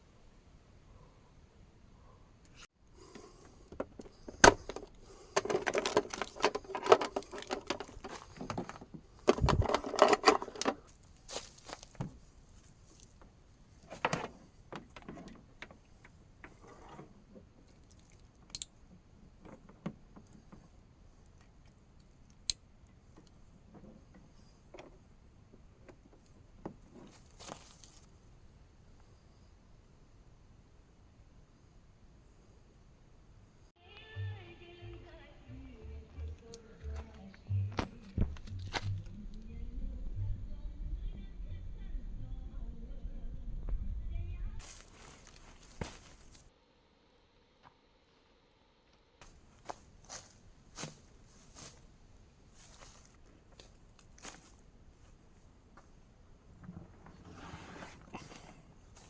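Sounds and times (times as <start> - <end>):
small hard objects clattering: 4.1 - 12.2.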